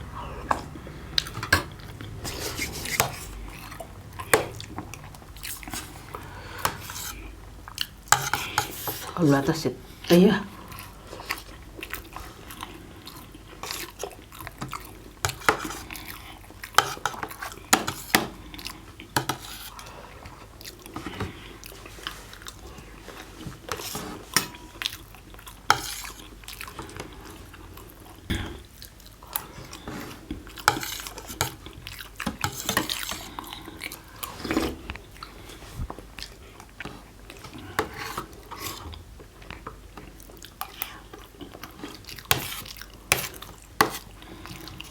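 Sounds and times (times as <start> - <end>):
chewing: 0.0 - 8.8, 10.6 - 44.9
cutlery and dishes clinking: 23.7 - 24.7.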